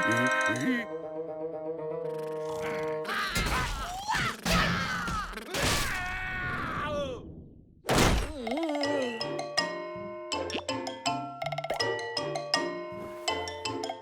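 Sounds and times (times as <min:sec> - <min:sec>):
cartoon character groaning: 0:00.0 - 0:00.9, 0:08.4 - 0:09.3.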